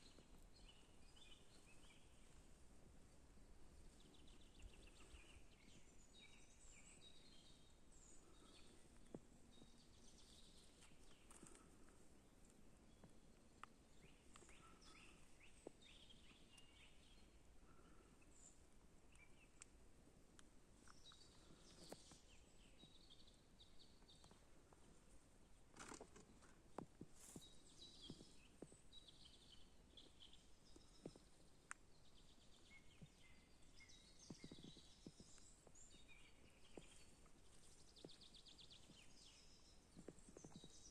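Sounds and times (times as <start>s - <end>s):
birds chirping and trilling: 3.5s - 12.1s, 12.9s - 19.7s, 32.0s - 40.9s.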